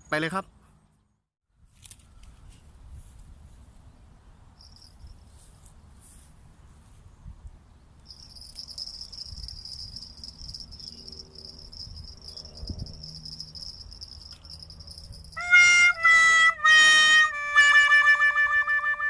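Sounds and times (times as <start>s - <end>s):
insects chirring: 4.6s - 5.2s, 8.0s - 15.5s.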